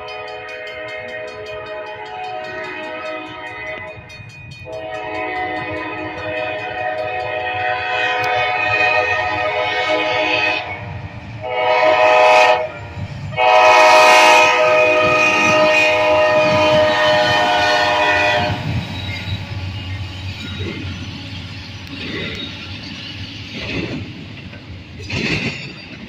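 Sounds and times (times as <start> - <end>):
freight train rumbling past: 0.0 - 26.0
locomotive air horn blasts: 4.6 - 18.8.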